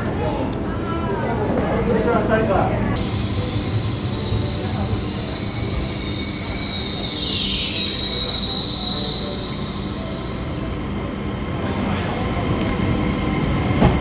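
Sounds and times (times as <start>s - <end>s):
train rumbling: 2.4s - 14.0s
squeal sliding down in pitch: 3.0s - 10.8s
train wheels squealing: 3.0s - 11.1s.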